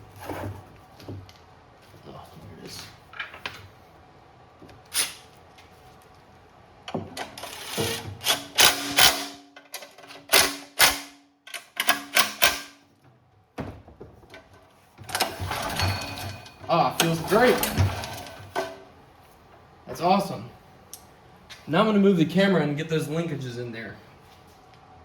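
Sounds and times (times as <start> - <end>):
ratchet clicking: 7.4 - 9.2.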